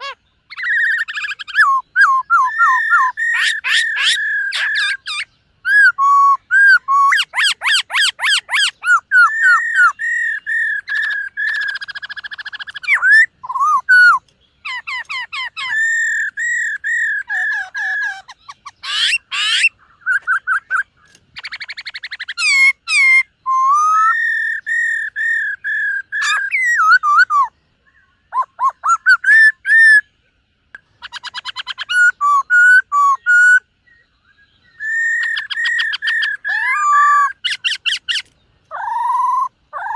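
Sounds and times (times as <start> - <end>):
bird singing whistled phrases: 0.0 - 30.1, 31.0 - 39.9.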